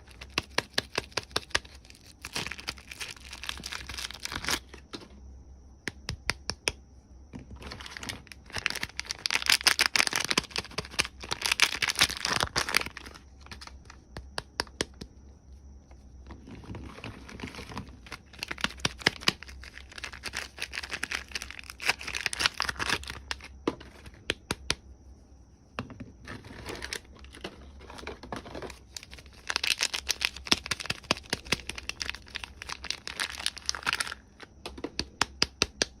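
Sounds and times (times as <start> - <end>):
packaging crinkling and tearing: 0.0 - 4.8, 7.6 - 13.7, 16.5 - 23.5, 26.3 - 34.5.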